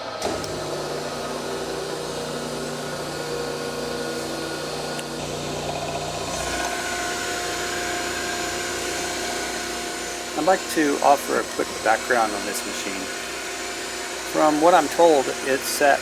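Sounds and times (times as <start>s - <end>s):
grinder motor humming: 0.0s - 16.0s.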